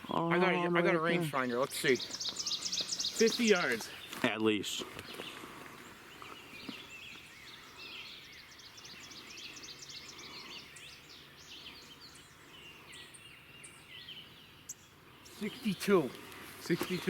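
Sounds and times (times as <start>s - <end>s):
birds chirping and whistling: 1.6s - 17.0s.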